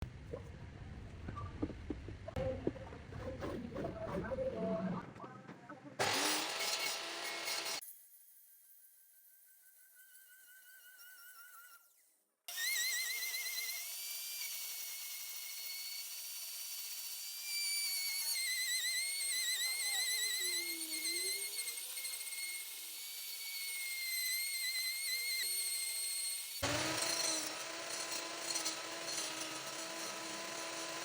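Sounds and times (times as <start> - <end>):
power tool whining on wood: 6.0 - 7.8, 9.4 - 31.0.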